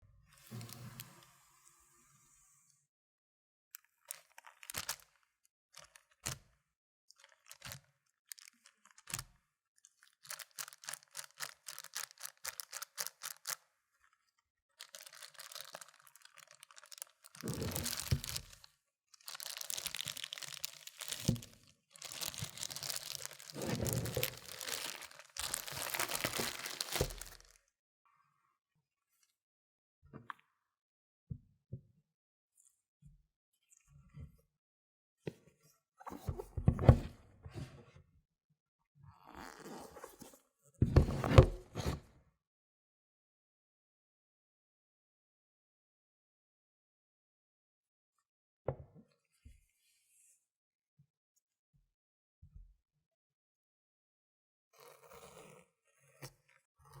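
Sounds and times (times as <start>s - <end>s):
wrapping tearing and crinkling: 4.1s - 5.2s, 7.2s - 9.2s, 9.9s - 13.6s, 14.8s - 27.6s.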